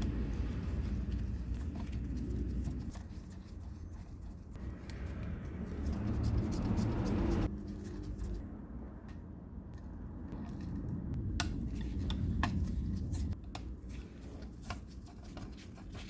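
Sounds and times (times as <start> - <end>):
low rumble: 4.5 - 13.4.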